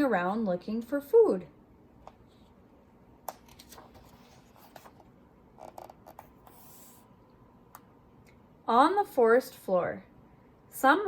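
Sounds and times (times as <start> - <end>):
paper page rustling: 3.4 - 7.0.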